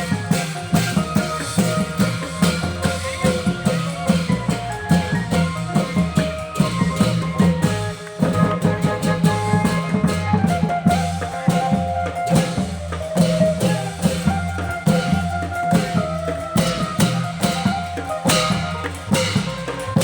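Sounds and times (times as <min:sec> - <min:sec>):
drums beating fast rhythm: 0:00.0 - 0:20.0.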